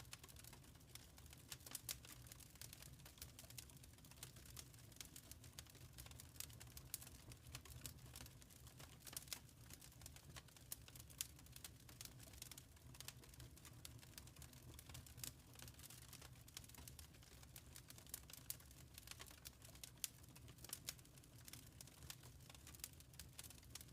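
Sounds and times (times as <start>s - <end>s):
wood fire crackling: 0.0s - 23.9s.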